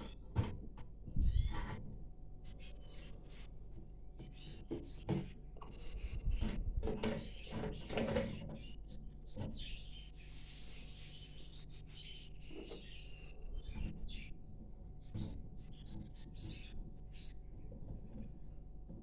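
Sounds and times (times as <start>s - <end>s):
knocks and rustles: 0.0s - 2.0s
small songbirds chirping: 2.4s - 19.0s.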